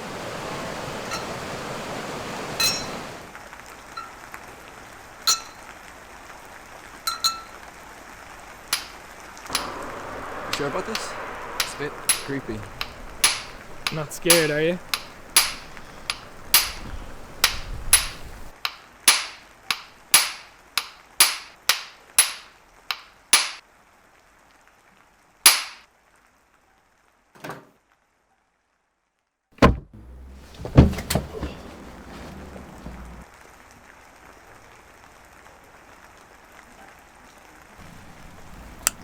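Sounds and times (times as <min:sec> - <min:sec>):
sharp knocks: 0:09.5 - 0:22.5, 0:29.6 - 0:33.2.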